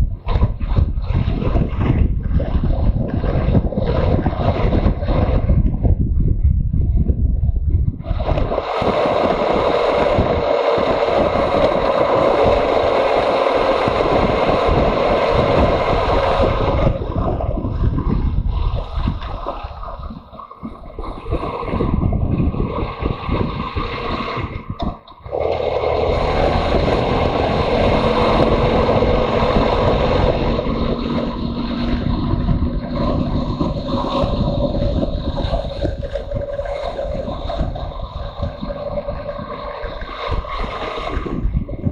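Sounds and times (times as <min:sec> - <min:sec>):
wind rush on microphone: 0:00.0 - 0:41.9
motorcycle engine running: 0:24.9 - 0:36.4.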